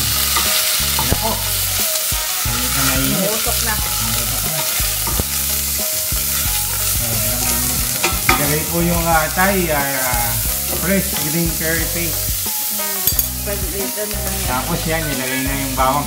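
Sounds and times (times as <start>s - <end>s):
food sizzling in hot oil: 0.0s - 16.0s
wooden spoon stirring: 2.4s - 11.5s.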